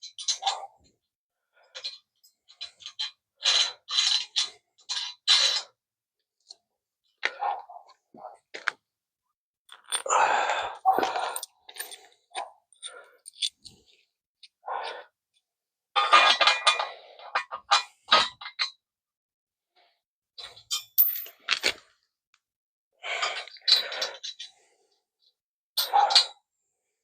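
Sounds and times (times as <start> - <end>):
metal tools clinking: 10.9 - 12.1.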